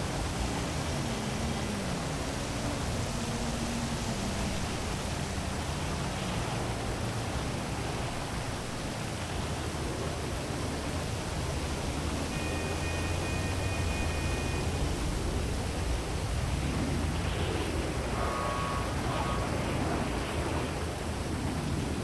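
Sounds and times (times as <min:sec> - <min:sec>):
low hum of city traffic: 0:00.0 - 0:22.0
faint high tone: 0:12.2 - 0:15.4.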